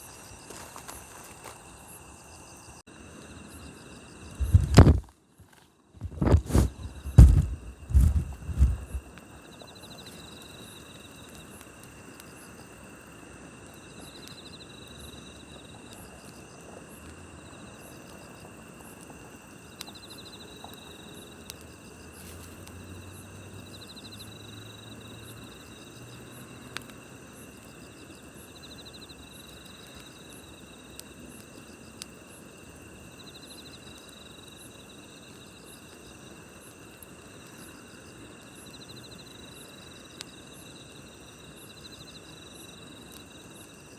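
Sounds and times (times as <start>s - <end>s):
insect trill: 0.0s - 43.9s
night insects chirring: 0.0s - 43.9s
campfire pops: 4.3s - 5.1s, 6.0s - 9.2s.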